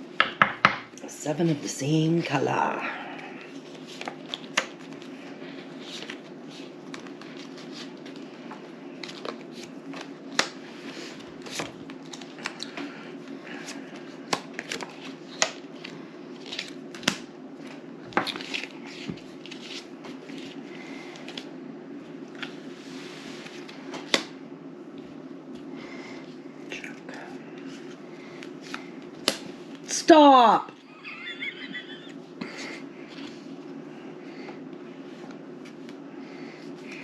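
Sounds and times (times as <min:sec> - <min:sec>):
steady low hum: 0:00.0 - 0:37.0
playing cards clicking and snapping: 0:03.7 - 0:05.1, 0:09.0 - 0:10.6, 0:11.4 - 0:12.8, 0:13.7 - 0:20.5, 0:24.0 - 0:24.4, 0:28.4 - 0:29.5.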